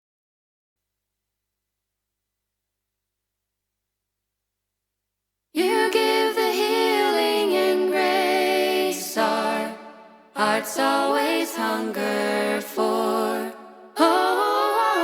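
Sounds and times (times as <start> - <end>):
vocal group singing a hymn: 5.6 - 15.0.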